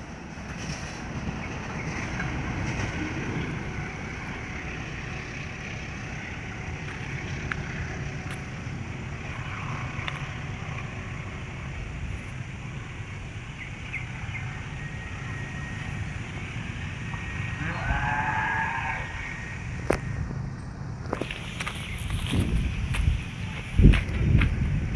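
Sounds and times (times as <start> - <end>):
train wheels rumbling on track: 0.0 - 24.9
wind on microphone: 19.5 - 24.9.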